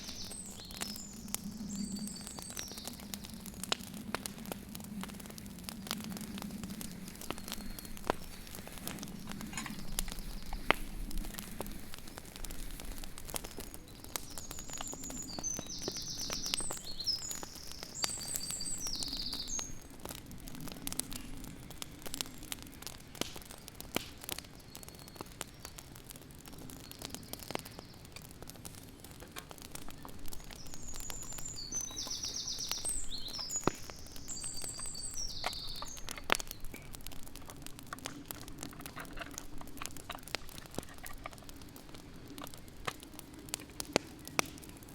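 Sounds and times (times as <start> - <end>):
sharp crackles and clicks: 0.0 - 44.9
songbird chirping: 13.6 - 19.8, 30.5 - 36.1.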